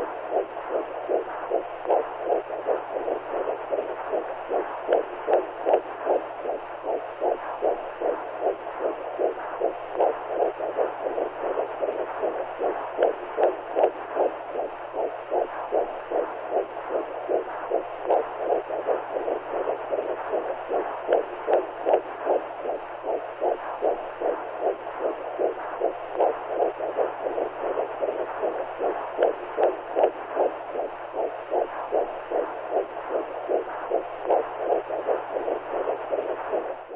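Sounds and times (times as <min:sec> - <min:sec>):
steady low hum: 0:00.0 - 0:36.9
whooshing heartbeat pulse: 0:00.0 - 0:36.9.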